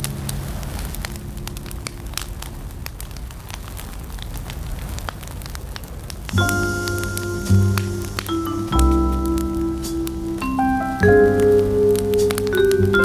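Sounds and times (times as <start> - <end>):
wood fire crackling: 0.0 - 13.0
music with deep bass: 6.4 - 13.0.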